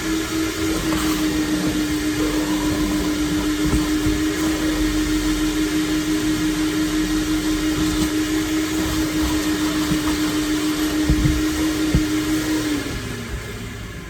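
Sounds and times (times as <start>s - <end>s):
vacuum cleaner running: 0.0s - 14.0s
low knocks: 10.9s - 12.3s.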